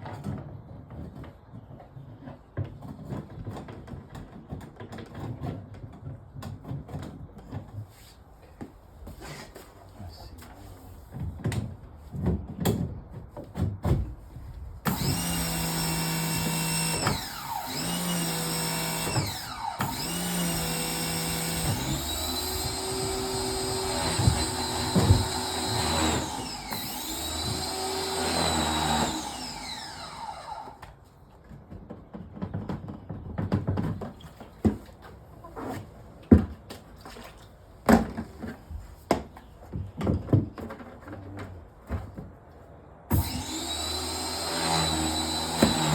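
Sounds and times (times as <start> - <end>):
power tool electric motor: 14.9 - 30.8, 43.1 - 45.9.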